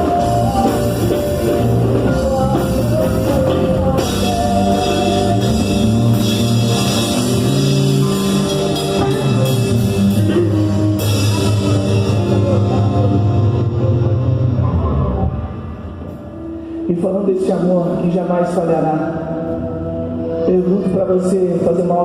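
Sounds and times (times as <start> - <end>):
rock band playing: 0.0 - 16.8.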